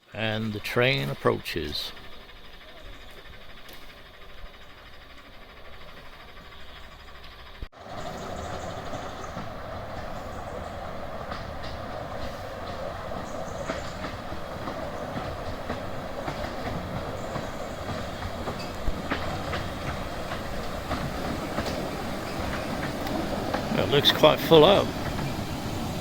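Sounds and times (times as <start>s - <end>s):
miniature train wheels clicking: 0.8s - 7.7s.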